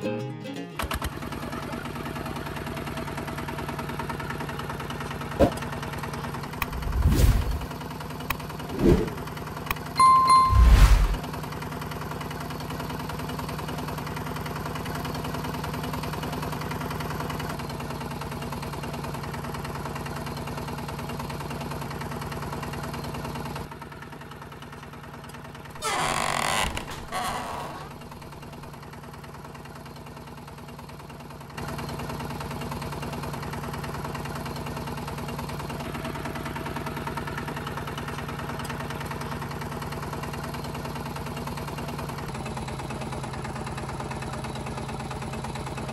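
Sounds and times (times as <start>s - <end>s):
small motor humming: 6.6s - 7.7s.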